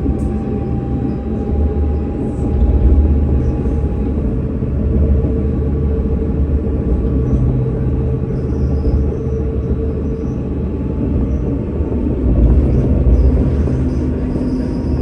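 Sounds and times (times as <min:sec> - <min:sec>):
tram rumbling: 0:00.0 - 0:15.0.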